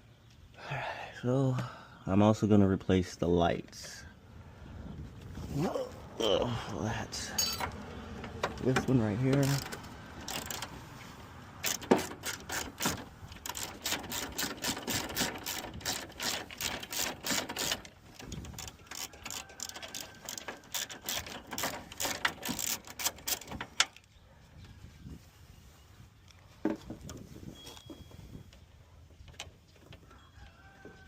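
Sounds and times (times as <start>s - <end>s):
ratchet wrench clicking: 9.4s - 10.7s, 11.6s - 23.9s.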